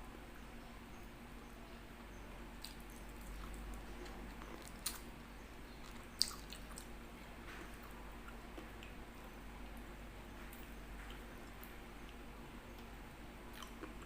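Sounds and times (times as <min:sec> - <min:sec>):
person chewing and biting: 0:02.6 - 0:05.1, 0:05.8 - 0:06.9.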